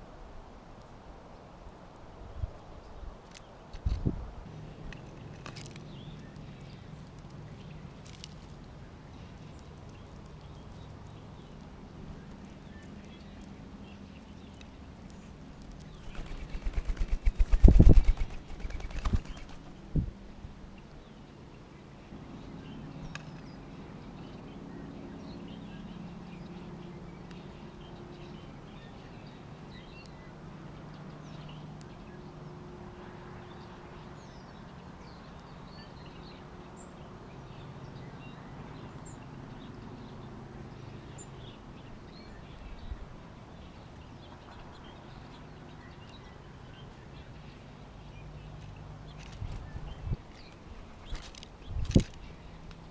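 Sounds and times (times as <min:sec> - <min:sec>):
bird wings fluttering: 0:15.9 - 0:19.9, 0:51.0 - 0:52.3.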